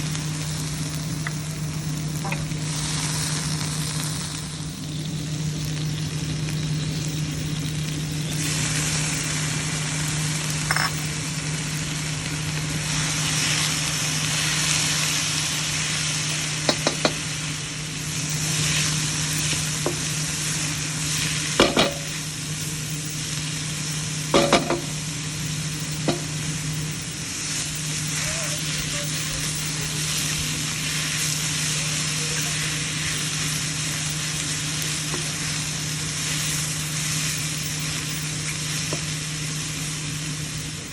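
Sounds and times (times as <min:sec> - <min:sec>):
low hum: 0:00.0 - 0:14.9
food sizzling in a pan: 0:00.0 - 0:40.9
utensil knocking against pan: 0:16.7 - 0:17.2.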